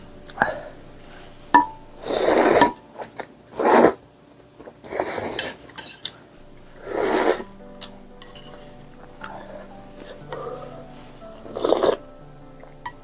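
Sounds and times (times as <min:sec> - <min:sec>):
rasping eating sounds: 0:06.8 - 0:10.8, 0:11.4 - 0:12.1.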